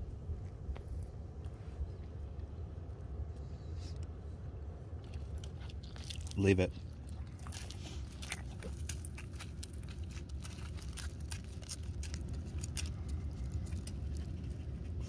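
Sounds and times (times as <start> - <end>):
crunchy chewing: 4.9 - 15.0.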